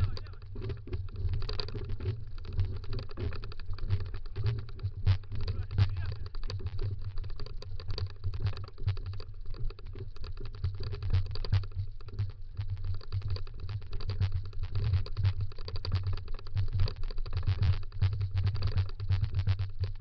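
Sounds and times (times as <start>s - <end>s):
scooter rattling over dirt trail: 0.0s - 12.2s.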